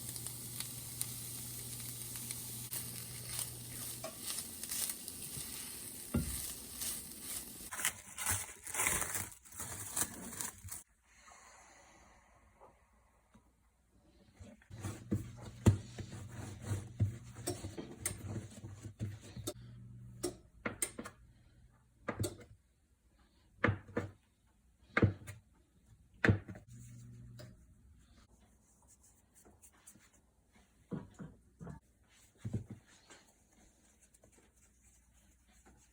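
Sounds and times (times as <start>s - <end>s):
kitchen knocks and taps: 22.0s - 22.5s, 26.2s - 26.6s
low steady hum: 26.7s - 28.2s.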